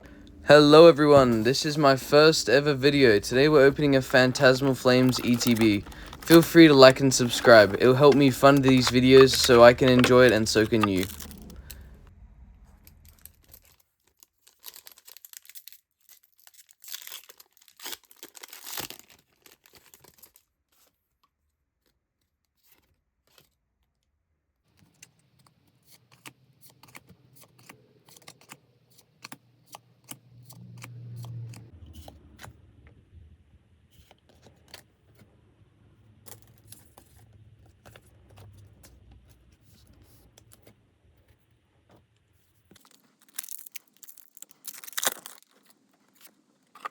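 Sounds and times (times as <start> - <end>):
packaging torn and crinkled: 1.3 - 11.8, 13.0 - 20.4, 42.7 - 46.9.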